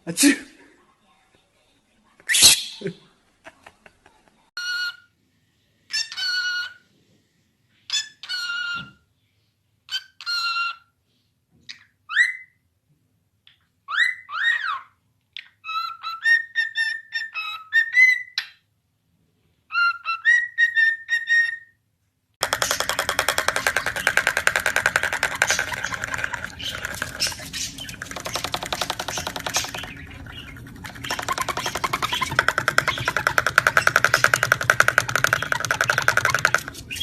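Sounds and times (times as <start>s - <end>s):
parrot squawking and whistling: 2.3s - 2.9s, 19.7s - 21.7s, 22.6s - 37.0s
buzzy rattle: 22.4s - 37.0s.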